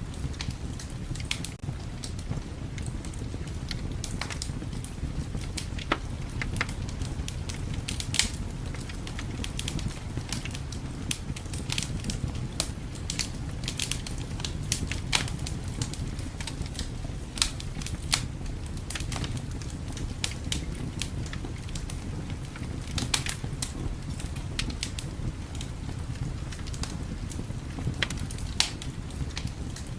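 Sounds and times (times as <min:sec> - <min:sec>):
wood fire crackling: 0:00.0 - 0:29.9
sharp pops and snaps: 0:07.5 - 0:18.3, 0:26.7 - 0:29.9.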